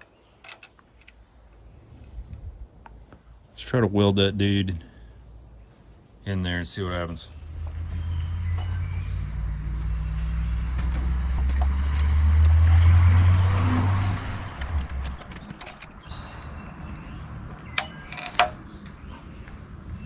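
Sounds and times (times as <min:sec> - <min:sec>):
sharp clicks and knocks: 0:10.7 - 0:13.8, 0:14.4 - 0:19.0.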